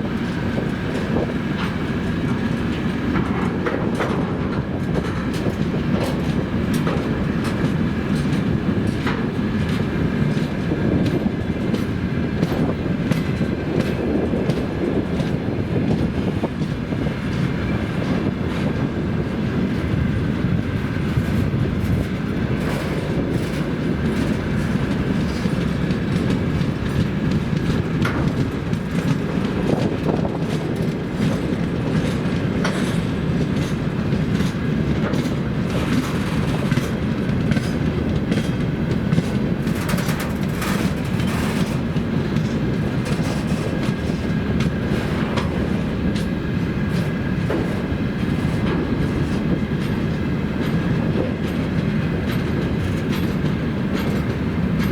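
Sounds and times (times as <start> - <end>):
freight train rumbling past: 0.0 - 54.9
wheels clattering over rail joints: 0.0 - 54.9.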